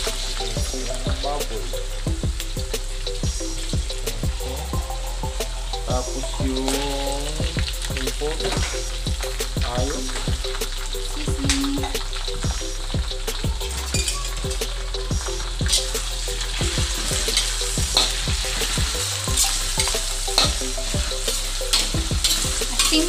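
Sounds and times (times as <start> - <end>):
food sizzling in a wok: 0.0 - 23.0
metal spatula scraping a wok: 15.7 - 18.8, 21.3 - 23.0.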